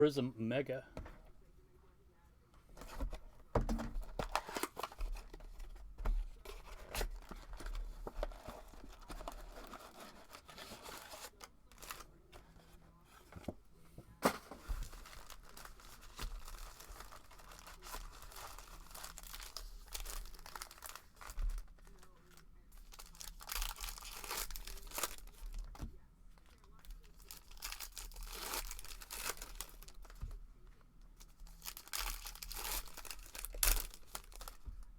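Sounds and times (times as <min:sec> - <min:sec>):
packaging crinkling: 0:02.8 - 0:12.3, 0:14.2 - 0:30.3, 0:31.2 - 0:34.9
plastic wrappers tearing: 0:03.8 - 0:05.8, 0:06.4 - 0:12.2, 0:14.2 - 0:25.8, 0:26.4 - 0:30.2, 0:31.2 - 0:34.8.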